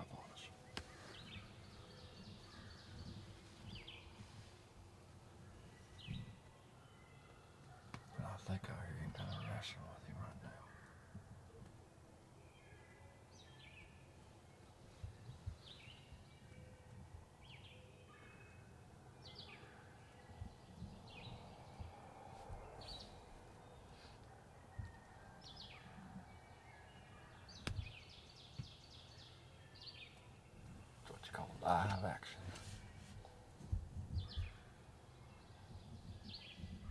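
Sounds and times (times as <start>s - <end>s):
songbird singing: 0.0s - 36.9s
soft low thumps: 32.8s - 34.7s.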